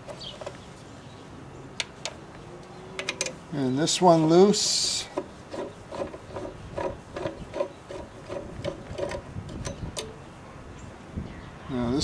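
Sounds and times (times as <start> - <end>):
screw squeaking in sheet metal: 5.1 - 10.2.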